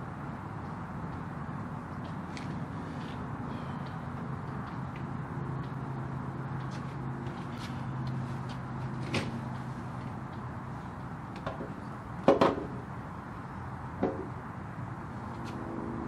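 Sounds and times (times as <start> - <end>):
sharp knocks and clunks: 11.4 - 12.8, 14.0 - 14.4.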